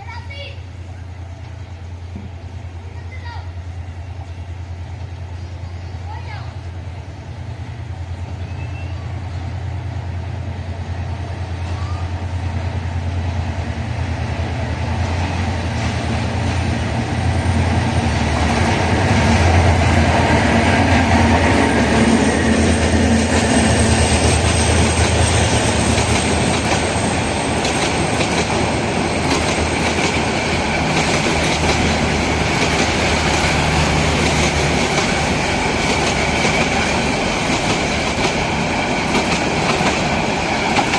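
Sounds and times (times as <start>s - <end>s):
locomotive engine drone: 3.6s - 40.9s
train wheels clicking over rail joints: 15.7s - 40.9s.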